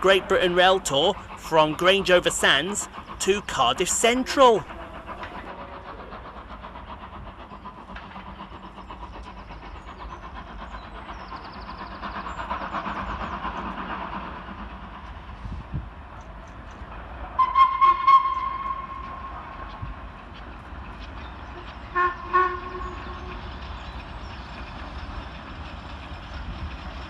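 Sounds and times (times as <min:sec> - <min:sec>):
steam locomotives running: 0:00.0 - 0:27.0
locomotive whistle blast: 0:17.4 - 0:19.0, 0:21.9 - 0:23.0.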